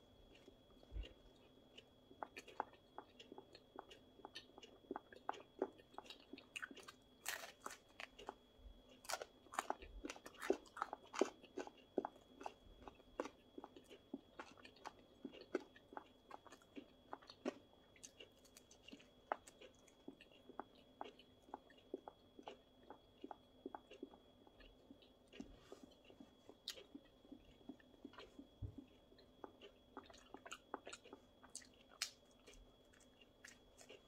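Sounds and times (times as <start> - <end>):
crunching crispy flatbread: 0.3 - 22.6.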